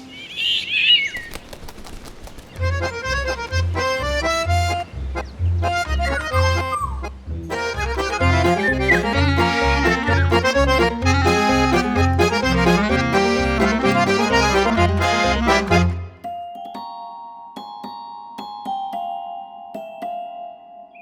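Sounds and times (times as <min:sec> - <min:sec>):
bouncing bass: 0:02.6 - 0:16.0
accordion playing chords: 0:02.6 - 0:16.2.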